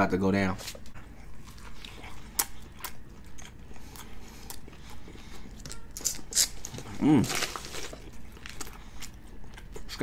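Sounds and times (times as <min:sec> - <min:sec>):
man chewing with wet mouth clicks: 0:00.9 - 0:06.8, 0:08.0 - 0:10.0.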